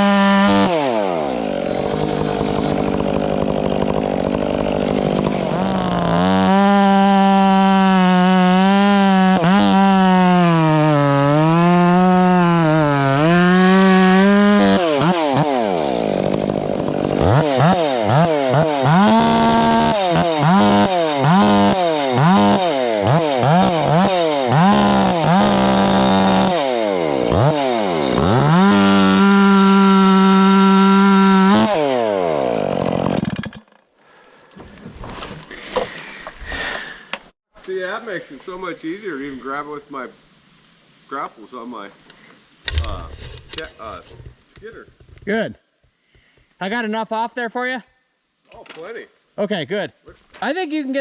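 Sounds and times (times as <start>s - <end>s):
chainsaw cutting log: 0.0s - 37.4s, 42.7s - 45.2s.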